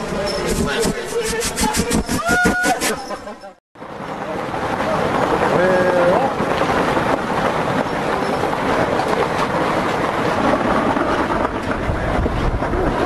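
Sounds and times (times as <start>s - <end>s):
wind buffeting microphone: 4.4s - 13.0s.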